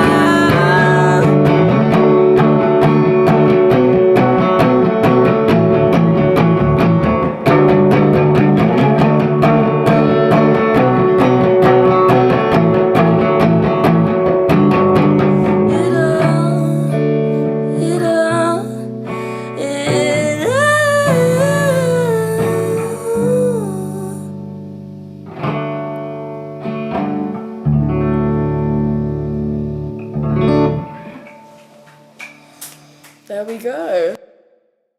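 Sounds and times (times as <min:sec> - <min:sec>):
bass line: 0:00.0 - 0:25.3
guitar picked notes: 0:00.0 - 0:34.1.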